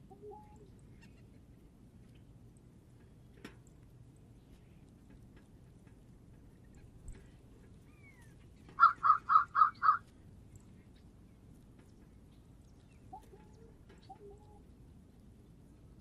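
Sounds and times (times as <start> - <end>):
bird calling: 0.0 - 1.4, 6.5 - 10.1, 12.8 - 14.7.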